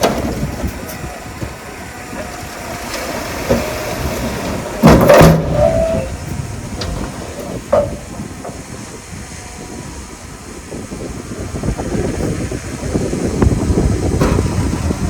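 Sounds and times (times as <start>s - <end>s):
heavy machinery rumbling: 0.0s - 15.0s
metallic squeals: 1.8s - 9.0s.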